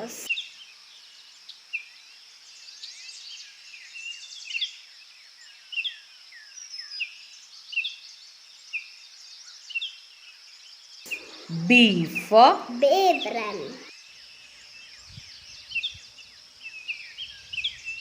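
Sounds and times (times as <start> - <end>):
small birds chirping: 0.0 - 18.0
steady high hiss: 11.1 - 18.0.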